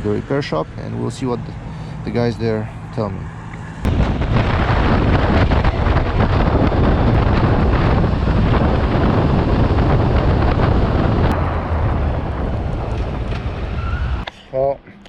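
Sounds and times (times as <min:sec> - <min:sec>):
wind buffeting microphone: 0:03.6 - 0:14.3.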